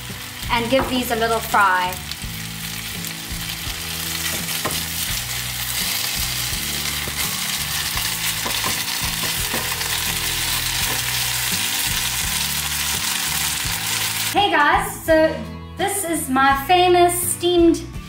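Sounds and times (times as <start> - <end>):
dumplings sizzling in pan: 0.0 - 14.4.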